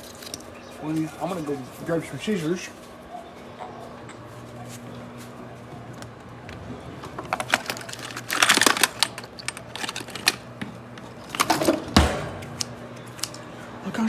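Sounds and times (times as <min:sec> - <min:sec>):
microwave humming: 0:00.0 - 0:14.0
clicks and clattering: 0:07.1 - 0:10.5, 0:11.2 - 0:13.4
heavy thump: 0:11.9 - 0:12.5.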